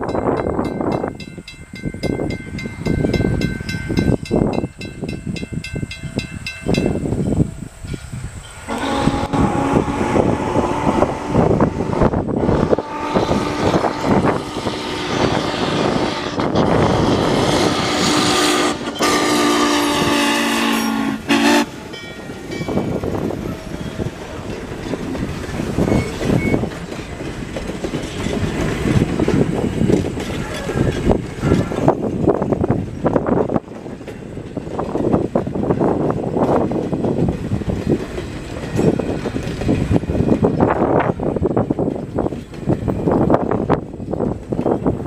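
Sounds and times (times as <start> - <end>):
train wheels rumbling: 0.0 - 45.0
train whistle blast: 8.7 - 21.8.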